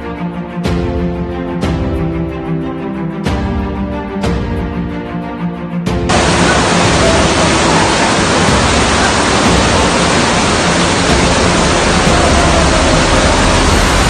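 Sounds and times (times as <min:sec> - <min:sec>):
water rushing: 0:06.1 - 0:14.0.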